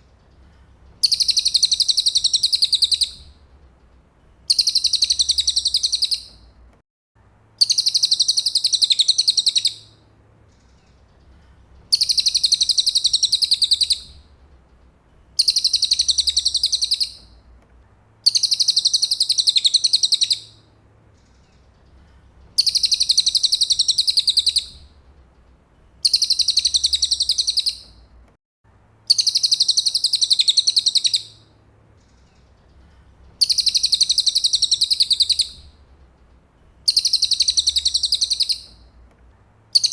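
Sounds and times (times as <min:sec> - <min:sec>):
high-pitched bird trill: 0:01.0 - 0:03.2, 0:04.5 - 0:06.3, 0:22.6 - 0:24.8, 0:26.0 - 0:27.9, 0:29.1 - 0:31.4, 0:33.4 - 0:35.7, 0:36.9 - 0:38.8.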